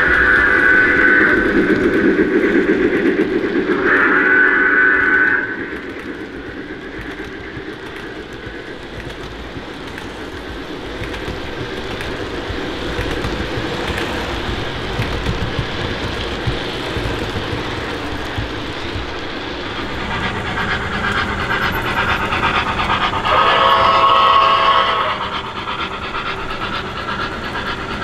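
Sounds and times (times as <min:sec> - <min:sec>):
model train rumbling on track: 0:00.0 - 0:28.0.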